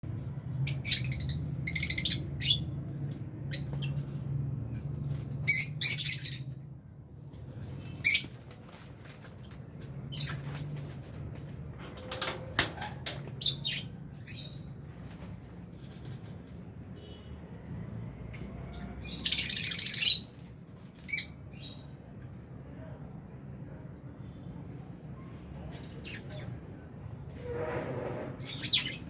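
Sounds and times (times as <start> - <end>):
birds chirping and squawking: 0.1 - 16.6, 18.4 - 22.0, 28.1 - 29.0.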